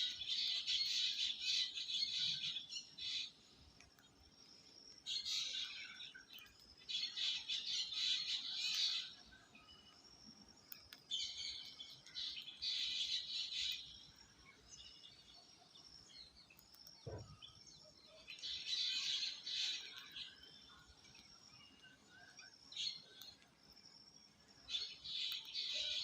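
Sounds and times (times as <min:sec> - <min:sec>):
low thump: 0:17.1 - 0:17.3.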